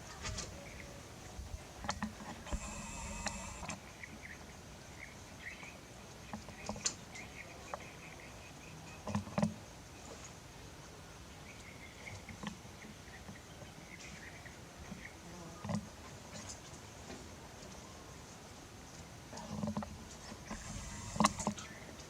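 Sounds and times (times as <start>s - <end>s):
small clicks: 1.8s - 3.8s, 20.5s - 21.7s.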